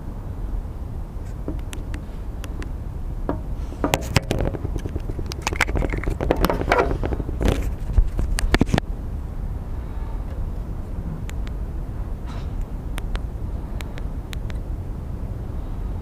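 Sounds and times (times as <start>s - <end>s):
low rumble: 0.0s - 16.0s
scraping: 3.3s - 8.8s.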